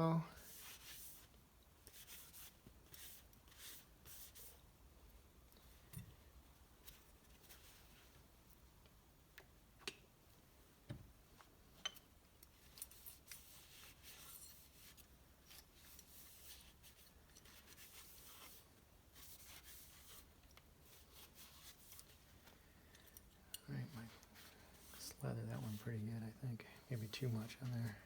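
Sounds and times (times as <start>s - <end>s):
soft rubbing and scraping: 0.4s - 4.6s, 6.8s - 8.3s, 12.5s - 28.0s.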